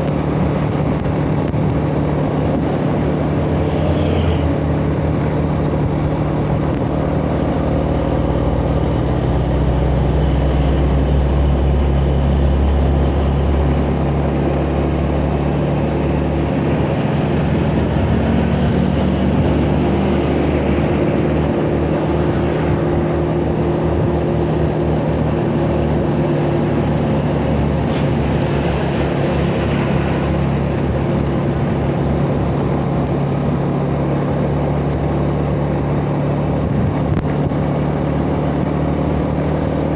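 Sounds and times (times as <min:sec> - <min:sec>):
road noise: 0:00.0 - 0:39.9.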